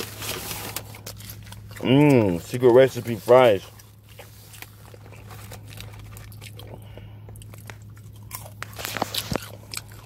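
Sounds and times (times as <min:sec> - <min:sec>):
crunching fries: 0:00.0 - 0:10.0.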